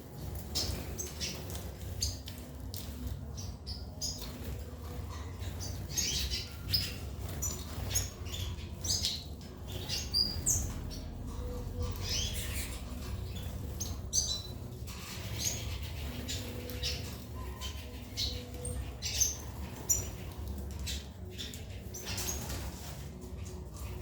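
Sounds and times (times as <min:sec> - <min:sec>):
birds chirping and squawking: 0:00.0 - 0:24.0.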